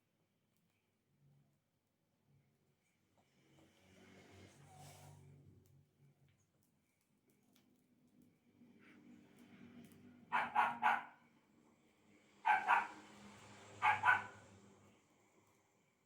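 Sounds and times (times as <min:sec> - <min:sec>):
dog barking: 0:10.3 - 0:11.2, 0:12.4 - 0:13.0, 0:13.8 - 0:14.4.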